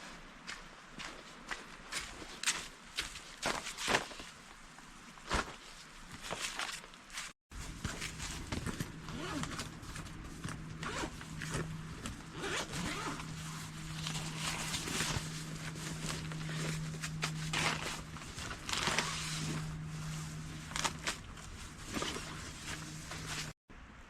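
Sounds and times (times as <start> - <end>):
rustling: 5.2 - 23.6
steady low hum: 7.5 - 23.6
zipper being pulled: 8.1 - 23.6.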